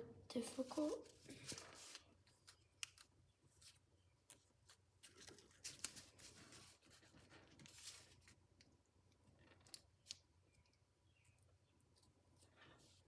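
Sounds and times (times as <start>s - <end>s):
paper being creased and folded: 0.5s - 8.4s.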